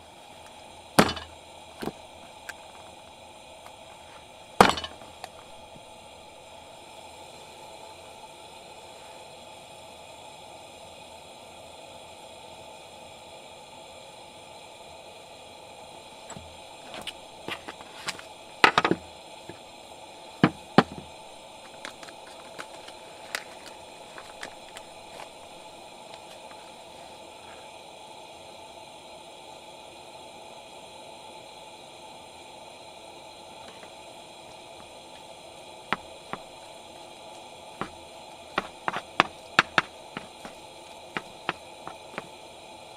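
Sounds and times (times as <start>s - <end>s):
campfire crackling: 16.2s - 27.7s, 33.5s - 42.9s
fire pops and snaps: 21.6s - 25.5s.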